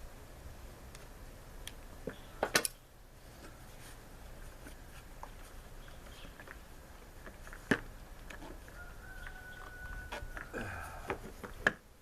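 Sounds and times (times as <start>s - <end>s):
hand tools clicking and tapping: 7.2s - 11.8s.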